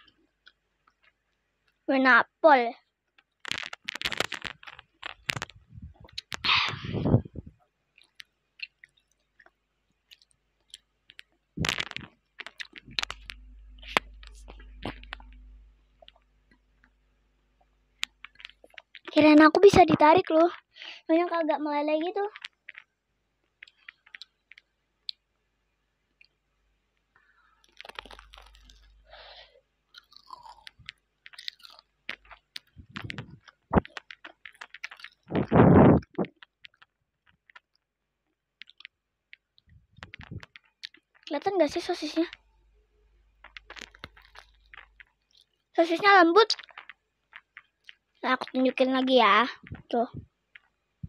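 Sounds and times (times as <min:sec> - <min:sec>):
wet chewing mouth clicks: 0:03.4 - 0:16.2, 0:18.0 - 0:19.2, 0:23.5 - 0:25.2, 0:27.6 - 0:37.8, 0:38.6 - 0:42.4, 0:43.4 - 0:48.6.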